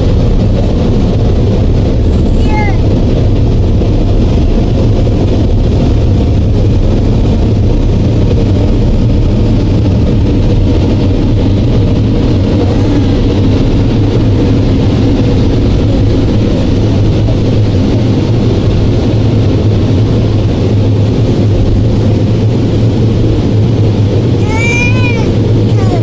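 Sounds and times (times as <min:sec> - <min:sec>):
car wash machinery rumbling: 0:00.0 - 0:26.0.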